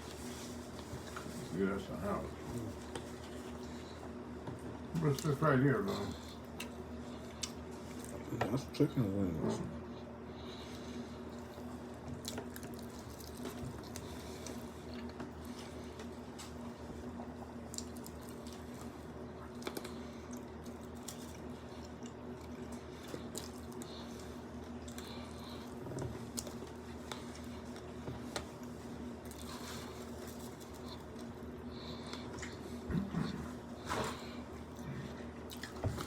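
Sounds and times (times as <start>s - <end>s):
steady low hum: 0.0s - 36.0s
wet chewing: 11.2s - 33.3s, 34.2s - 36.0s.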